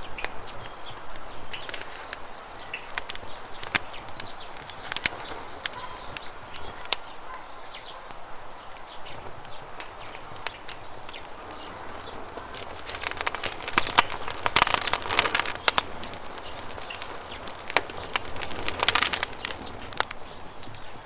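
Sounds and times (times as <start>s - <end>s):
campfire crackling and popping: 0.0s - 21.0s.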